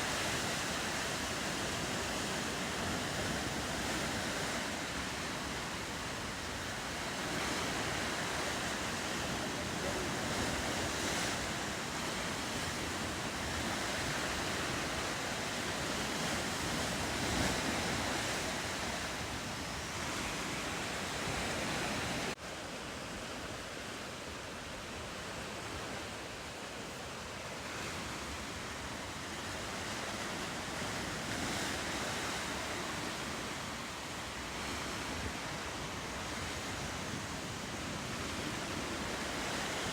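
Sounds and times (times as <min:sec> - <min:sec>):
wind on microphone: 0:00.0 - 0:22.4
ocean surf and waves: 0:00.0 - 0:39.9.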